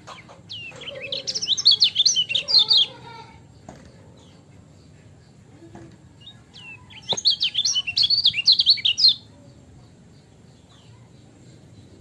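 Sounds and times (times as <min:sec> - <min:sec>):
bird singing high chirps: 0:00.1 - 0:03.6, 0:06.1 - 0:12.0.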